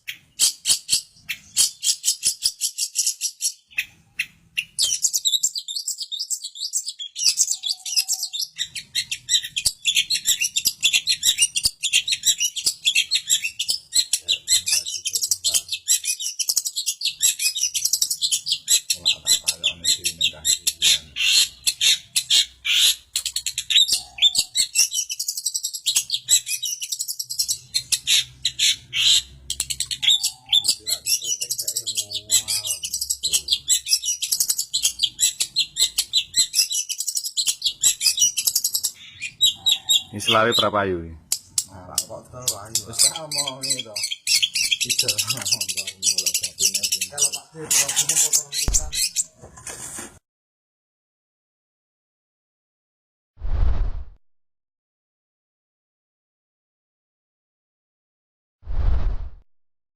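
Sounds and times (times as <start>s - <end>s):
shrike singing rapid chatter: 7.2s - 40.6s, 41.4s - 49.2s.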